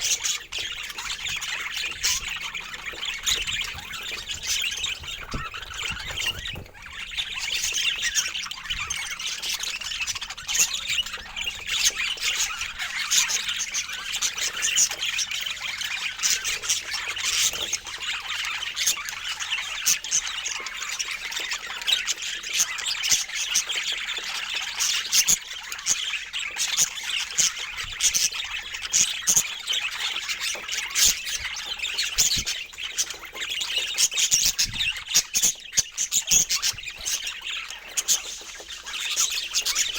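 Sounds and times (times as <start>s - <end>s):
flock of birds chattering: 0.0s - 39.9s.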